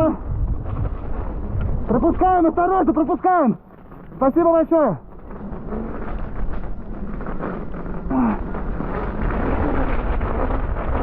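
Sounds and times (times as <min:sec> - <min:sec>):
wind on microphone: 0:00.0 - 0:02.6, 0:05.2 - 0:11.0.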